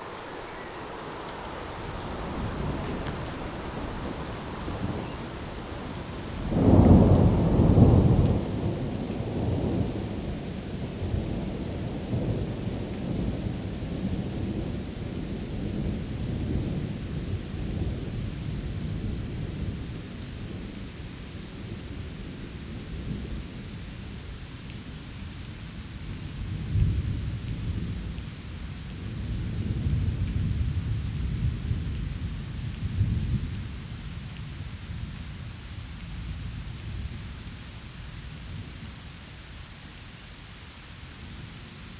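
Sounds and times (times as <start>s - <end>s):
thunder: 0.0s - 20.6s, 29.0s - 35.1s
steady rain: 0.0s - 41.9s.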